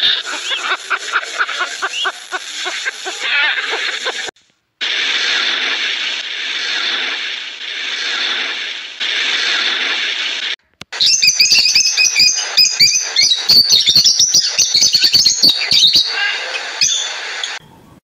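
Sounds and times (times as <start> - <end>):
flock of birds chirping: 0.0 - 4.3, 10.9 - 17.6
steady rushing noise: 0.0 - 10.6.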